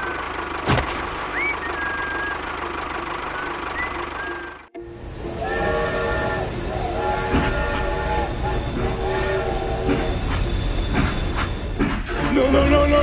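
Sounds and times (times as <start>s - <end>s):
long tones: 4.8s - 11.7s
toy train high-pitched whine: 4.8s - 11.8s.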